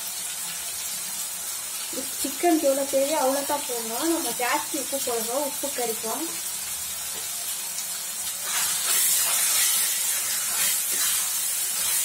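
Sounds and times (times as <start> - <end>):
meat sizzling in oil: 0.0 - 12.0
spoon scraping a pan: 8.3 - 12.0.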